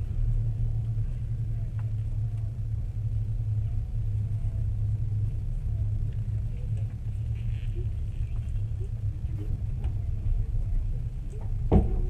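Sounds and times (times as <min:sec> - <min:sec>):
train rumbling inside carriage: 0:00.0 - 0:12.0.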